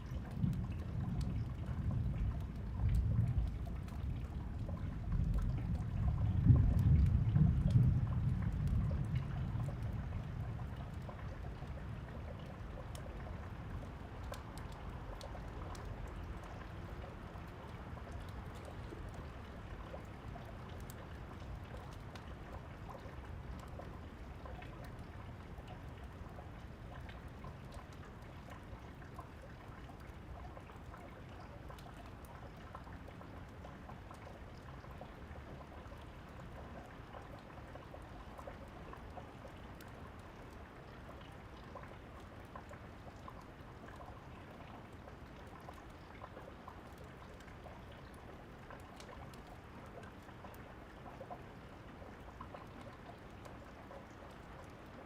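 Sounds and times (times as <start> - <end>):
low rumble of thunder: 0.0 - 13.3
steady rain: 0.0 - 55.0
wood fire crackling: 14.3 - 30.7.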